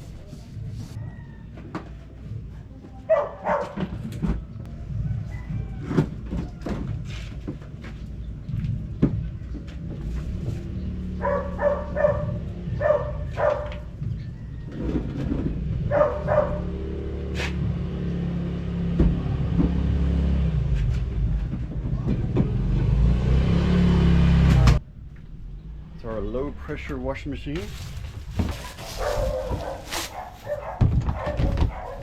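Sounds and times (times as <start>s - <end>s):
dog barking: 3.1s - 3.9s, 11.2s - 13.9s, 15.8s - 16.8s, 28.6s - 32.0s
low rumble: 24.5s - 28.5s.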